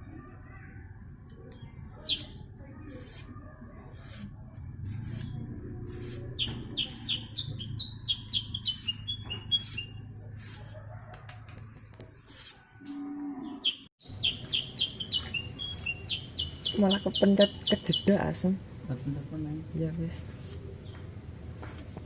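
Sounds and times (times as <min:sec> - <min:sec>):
bird chirping: 0:01.4 - 0:02.4, 0:06.2 - 0:10.1, 0:13.0 - 0:18.4.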